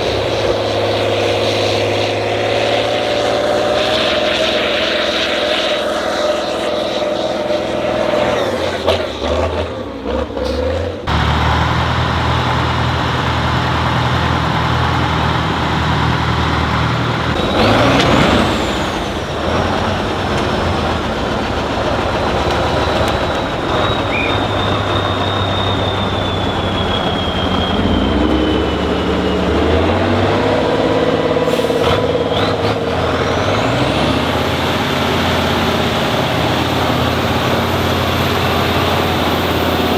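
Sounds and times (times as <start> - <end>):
diesel truck engine revving: 0.0 - 39.9
thin high whistle: 22.2 - 30.6.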